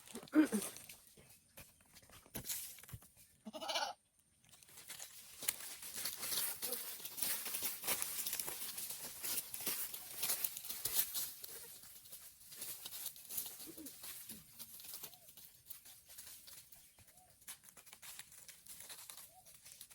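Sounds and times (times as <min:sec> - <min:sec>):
goat bleating: 0:03.4 - 0:04.0
crackling and rustling clicks: 0:04.4 - 0:11.7.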